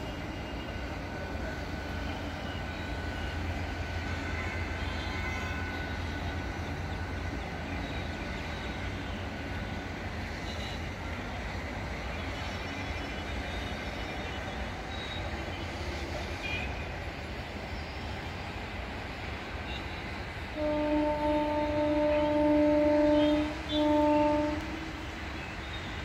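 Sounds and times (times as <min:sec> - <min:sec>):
electric train pulling away: 0:00.0 - 0:26.0.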